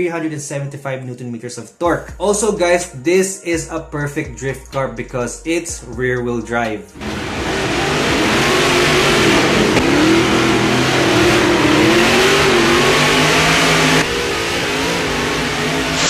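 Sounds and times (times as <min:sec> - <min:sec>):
car engine revving hard: 0:07.0 - 0:16.0.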